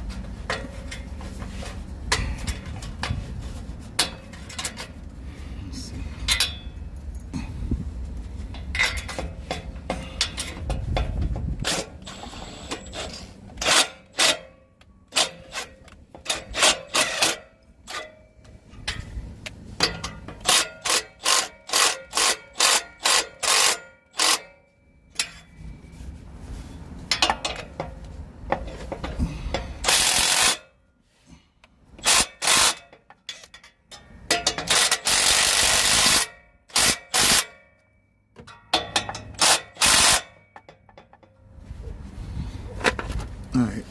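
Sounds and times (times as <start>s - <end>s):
metal rubbing and scraping: 8.2s - 24.5s
ratchet wrench clicking: 19.8s - 24.5s, 29.8s - 30.7s, 32.0s - 33.5s, 34.4s - 37.6s, 38.9s - 40.4s.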